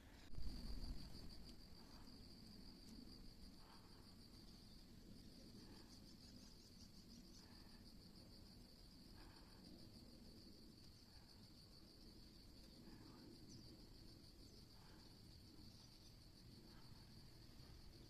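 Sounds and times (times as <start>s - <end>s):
low outdoor rumble: 0.0s - 6.0s
insects chirring: 0.0s - 18.0s.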